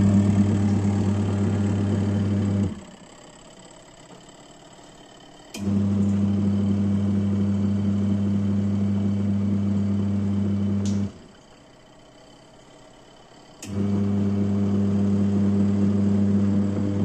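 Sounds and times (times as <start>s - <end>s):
washing machine motor humming: 0.0s - 17.0s.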